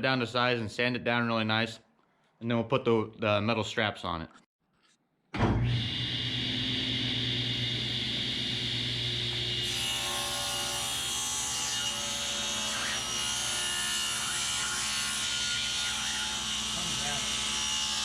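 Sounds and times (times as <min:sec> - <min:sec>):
power tool on wooden boards: 0:05.4 - 0:18.0.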